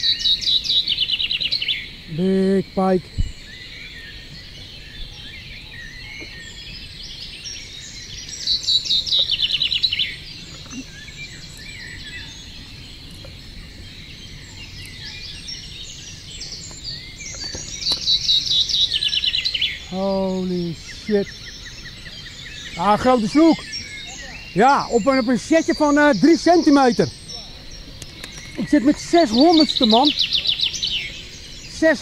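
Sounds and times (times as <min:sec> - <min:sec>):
birds chirping: 0:00.0 - 0:32.0
bird rapid trilling phrase: 0:22.6 - 0:32.0.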